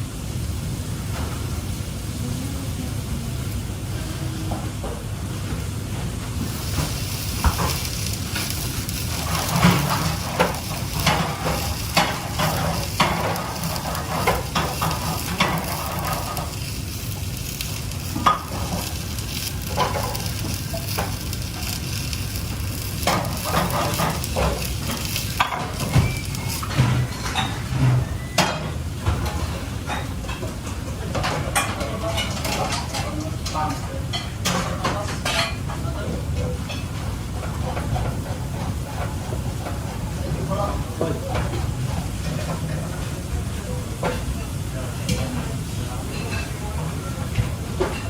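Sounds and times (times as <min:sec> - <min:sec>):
food sizzling in a pan: 0:00.1 - 0:30.3
utensil clinking and scraping: 0:06.6 - 0:27.6.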